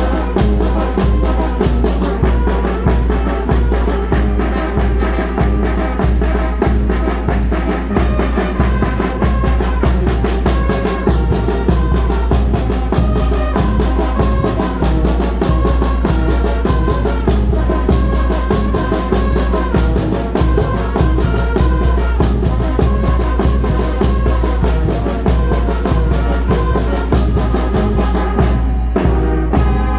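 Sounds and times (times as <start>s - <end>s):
brass band melody: 1.5s - 13.6s, 22.4s - 29.9s
heavy bass line: 4.0s - 9.6s, 28.5s - 29.9s
steady drum beat: 4.0s - 10.5s, 28.4s - 29.9s.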